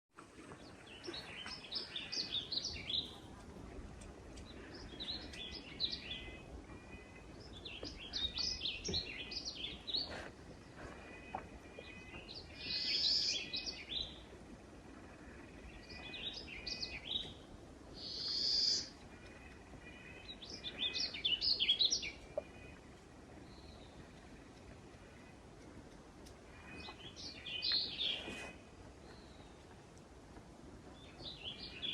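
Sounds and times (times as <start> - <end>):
songbirds singing: 0.2 - 31.9.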